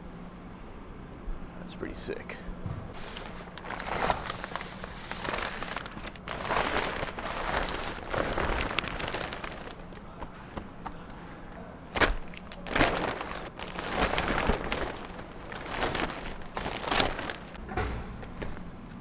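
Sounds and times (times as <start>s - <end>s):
plastic wrap tearing and crumpling: 3.0s - 10.1s, 11.9s - 17.6s.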